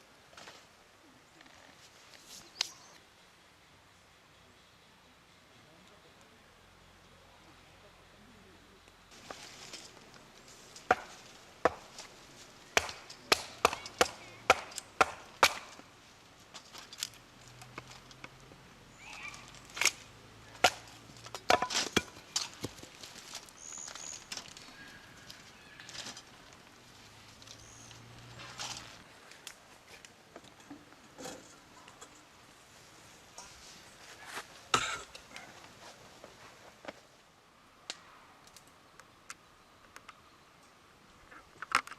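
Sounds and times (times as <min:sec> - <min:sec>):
chopping strikes on wood: 0:10.9 - 0:11.9, 0:12.8 - 0:15.7.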